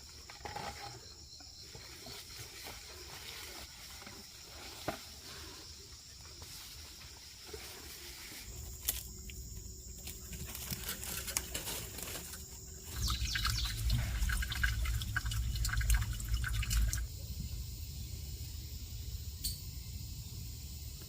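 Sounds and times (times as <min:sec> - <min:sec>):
liquid dripping and pouring: 0:12.9 - 0:17.1.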